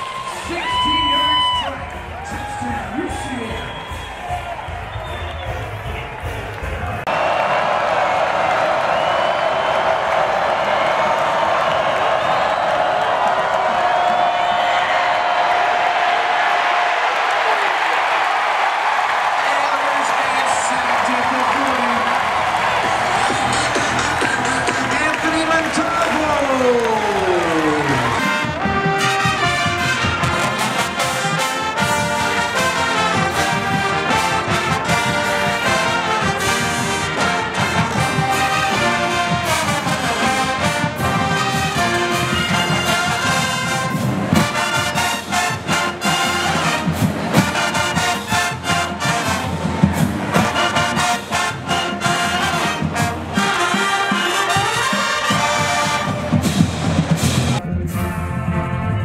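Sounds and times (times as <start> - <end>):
brass band playing: 16.0 - 59.0.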